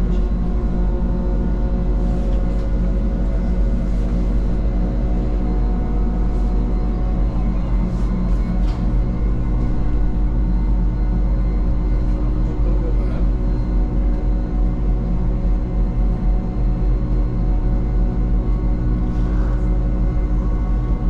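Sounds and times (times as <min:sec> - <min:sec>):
electric train humming: 0:00.0 - 0:21.0
heavy low rumble: 0:00.0 - 0:21.0.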